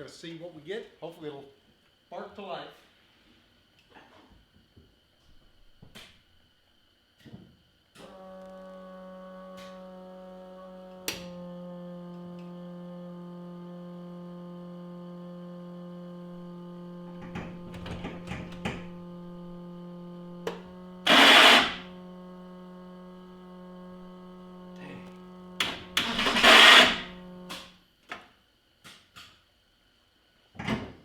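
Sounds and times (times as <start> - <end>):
steady hum: 7.8 - 28.0
race car starter motor cranking: 8.0 - 27.8.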